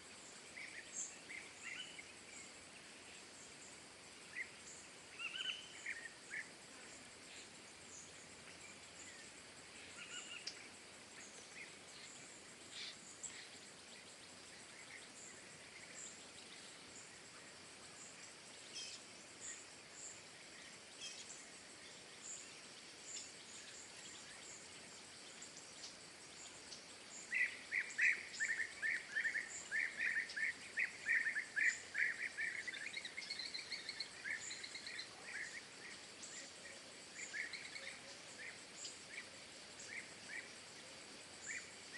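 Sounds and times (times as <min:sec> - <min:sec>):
songbirds chirping: 0:00.0 - 0:41.9
steady background hiss: 0:00.0 - 0:41.9.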